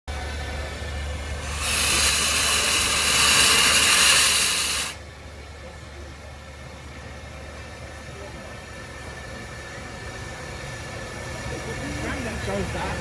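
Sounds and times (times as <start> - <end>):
steady low hum: 0.1 - 13.0
locomotive steam hiss: 0.8 - 5.0.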